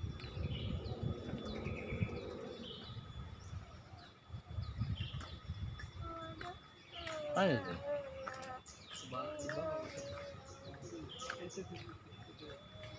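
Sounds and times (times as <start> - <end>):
low rumble: 0.0 - 6.0
small birds chirping: 0.0 - 12.9.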